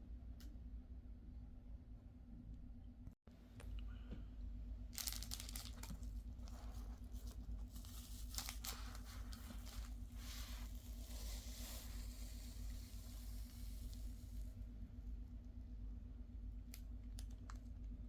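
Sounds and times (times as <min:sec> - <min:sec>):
steady low hum: 0:00.0 - 0:18.0
wrapping rustling and crinkling: 0:04.9 - 0:14.6.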